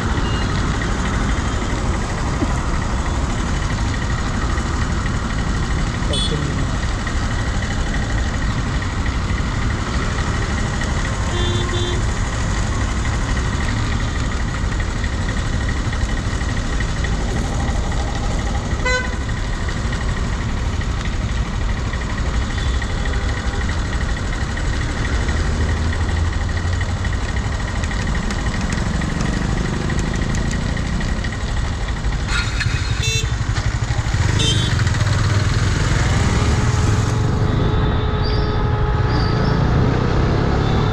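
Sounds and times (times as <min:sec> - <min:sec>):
motorcycle engine riding: 0:00.0 - 0:37.8
vehicle horns honking: 0:00.2 - 0:00.6, 0:06.1 - 0:06.7, 0:11.2 - 0:12.2, 0:18.7 - 0:19.4, 0:22.4 - 0:23.9, 0:32.2 - 0:40.9.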